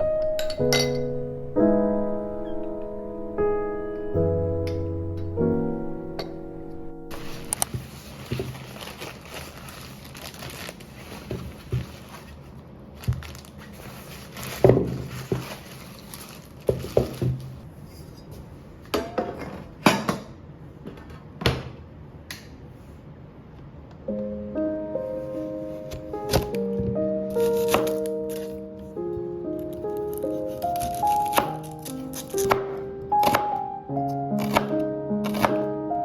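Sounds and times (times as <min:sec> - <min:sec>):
piano background music: 0:00.0 - 0:17.6, 0:24.0 - 0:36.0
low room hum: 0:00.0 - 0:31.0
dishes and utensils clattering: 0:00.2 - 0:01.1.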